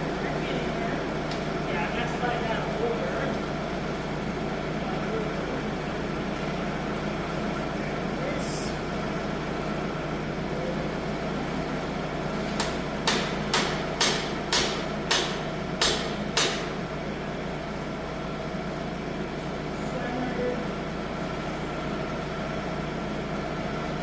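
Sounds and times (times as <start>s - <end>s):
tractor engine idling: 0.0s - 24.0s
sharp knocks: 12.6s - 16.8s.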